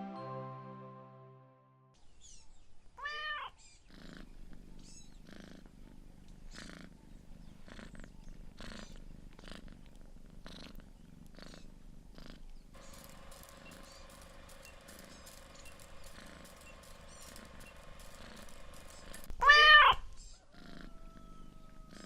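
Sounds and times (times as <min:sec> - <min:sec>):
cat meowing: 0:03.0 - 0:03.6, 0:19.4 - 0:20.1
cat purring: 0:03.7 - 0:22.0.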